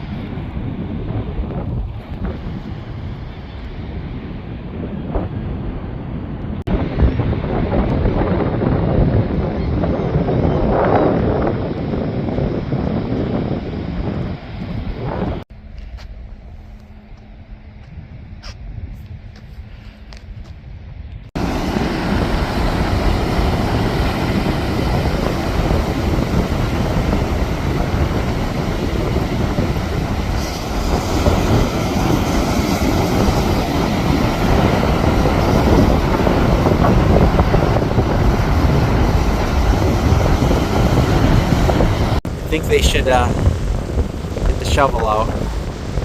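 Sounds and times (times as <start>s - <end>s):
wind buffeting microphone: 0.0s - 46.0s.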